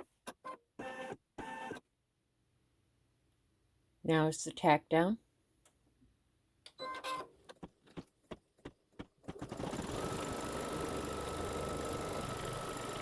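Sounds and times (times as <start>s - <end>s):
embroidery machine running: 9.3s - 13.0s.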